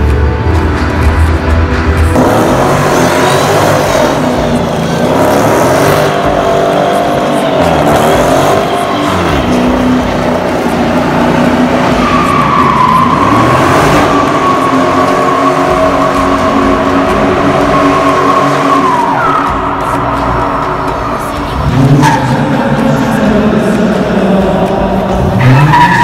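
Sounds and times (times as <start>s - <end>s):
car engine revving: 0.0s - 26.0s
tyres squealing: 3.2s - 22.6s.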